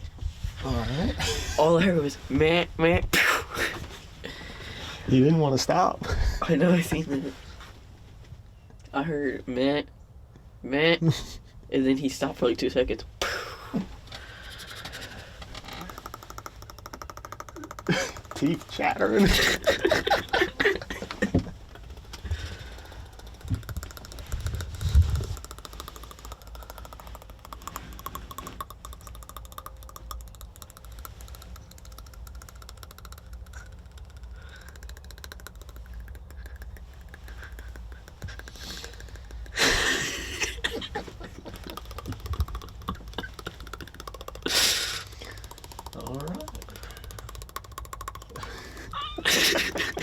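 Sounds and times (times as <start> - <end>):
teeth chattering: 13.1 - 50.0
loud breath: 13.3 - 15.6, 22.2 - 23.5.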